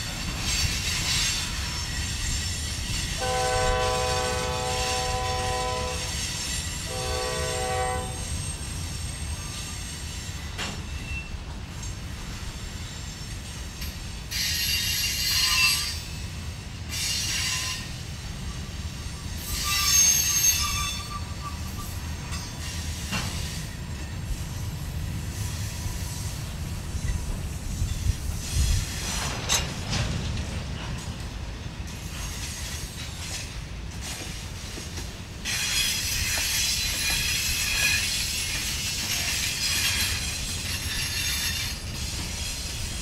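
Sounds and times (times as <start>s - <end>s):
freight cars rumbling on rails: 0.0s - 43.0s
wheel squeal: 8.0s - 11.4s, 14.3s - 16.1s, 16.9s - 23.8s, 35.5s - 42.9s.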